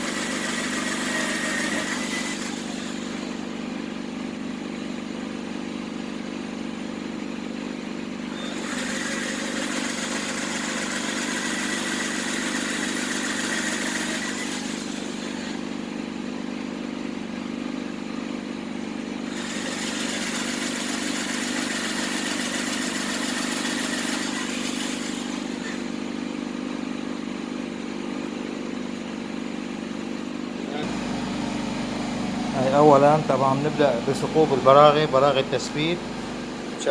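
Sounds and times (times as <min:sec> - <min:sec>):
electric drill whining: 0:00.0 - 0:03.7, 0:08.2 - 0:16.0, 0:19.2 - 0:26.2
steady low hum: 0:29.8 - 0:36.9.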